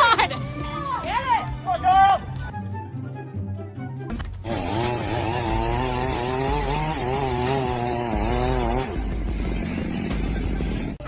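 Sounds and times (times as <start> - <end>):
rough gritty noise: 4.1 - 11.0
power tool whining: 4.4 - 10.6.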